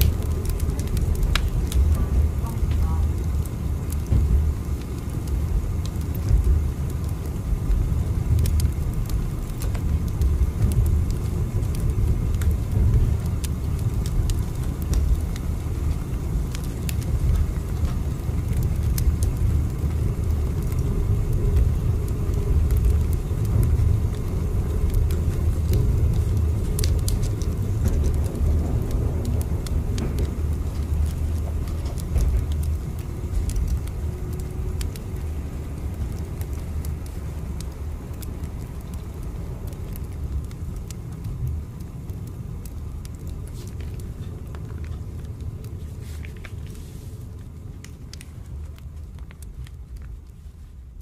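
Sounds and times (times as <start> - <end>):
moving train rumble: 0.0 - 48.7.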